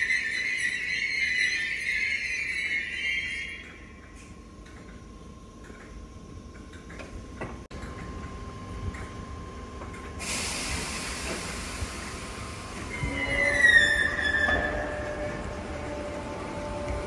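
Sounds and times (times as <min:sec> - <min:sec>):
electric train hum and whine: 0:00.0 - 0:17.0
air hiss: 0:10.2 - 0:12.9.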